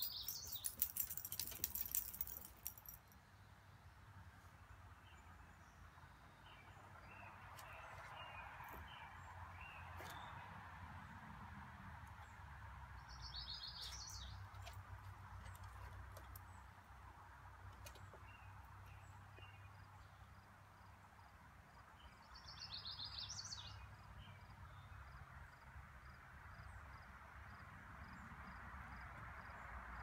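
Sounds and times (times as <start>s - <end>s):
songbird singing: 0.0s - 10.5s, 12.0s - 17.0s, 17.6s - 25.6s.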